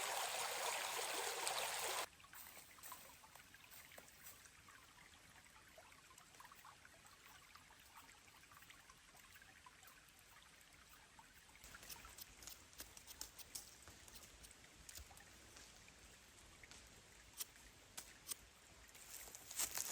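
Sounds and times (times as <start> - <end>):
small ticks: 6.1 - 19.9.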